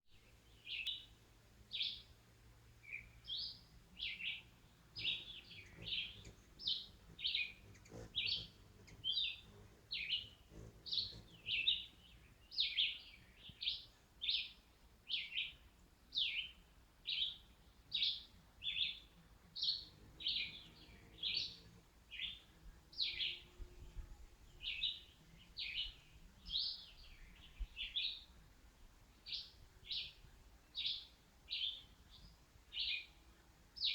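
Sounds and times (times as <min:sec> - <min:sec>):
bird chirping: 0:00.2 - 0:02.2, 0:02.8 - 0:15.6, 0:16.2 - 0:28.4.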